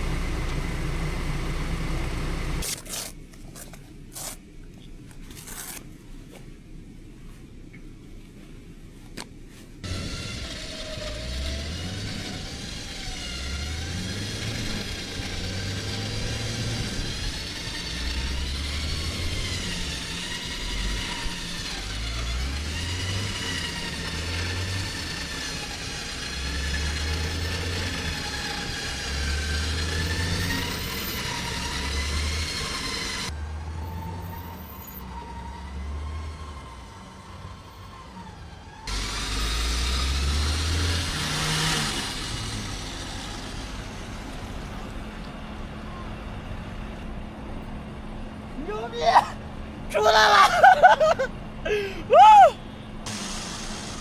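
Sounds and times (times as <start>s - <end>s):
suv engine revving: 9.8s - 46.3s
wavering whine: 9.9s - 33.4s.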